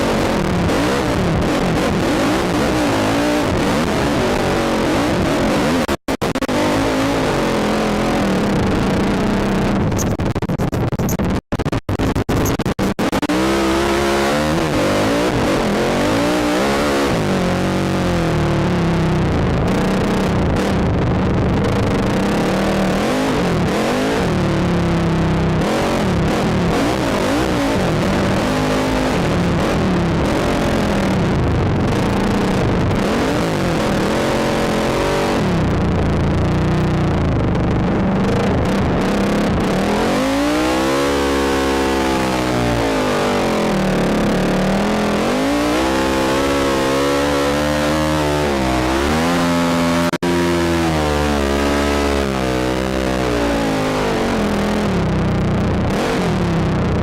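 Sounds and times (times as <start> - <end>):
atv engine revving: 0.0 - 10.1, 13.0 - 20.8, 21.6 - 57.0.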